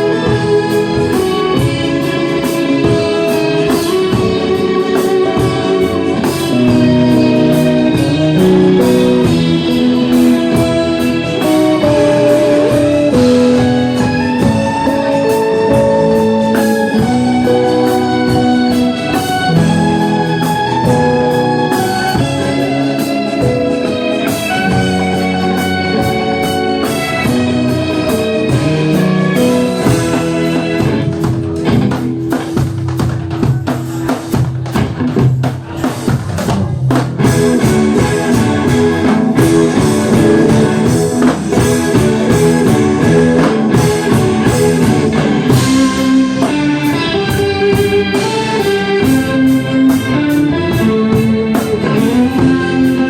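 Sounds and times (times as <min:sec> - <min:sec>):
band playing guitar and drums: 0:00.0 - 0:53.0.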